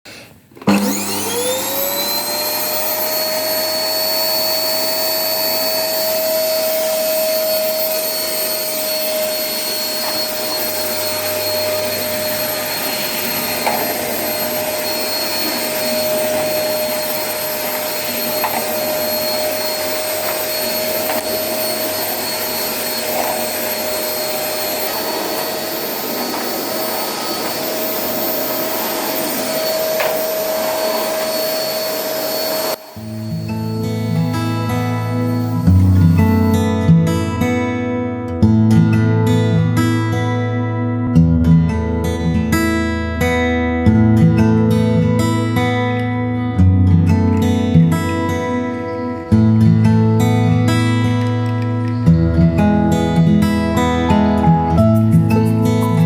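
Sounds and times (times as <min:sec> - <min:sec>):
electric motor whining: 0:00.6 - 0:36.6.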